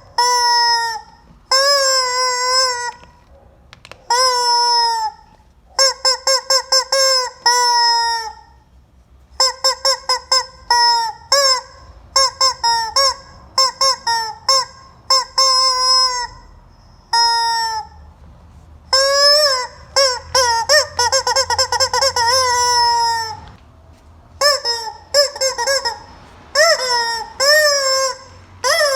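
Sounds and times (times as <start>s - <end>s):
rubber chicken toy squawking: 0.0s - 8.7s, 9.3s - 18.1s, 18.9s - 23.6s, 24.4s - 28.9s.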